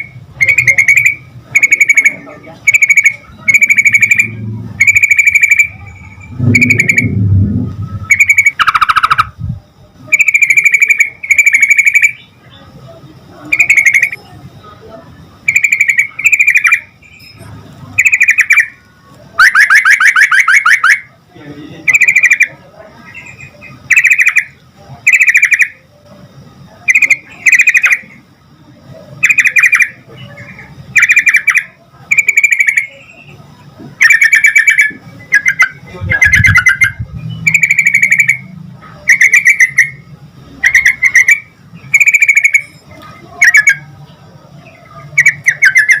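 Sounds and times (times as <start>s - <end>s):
bulbul chattering calls: 8.1s - 9.4s, 10.1s - 12.4s, 13.5s - 14.2s, 15.5s - 17.4s, 21.9s - 25.8s, 29.2s - 33.4s, 34.0s - 40.0s, 40.6s - 42.7s, 44.6s - 46.0s.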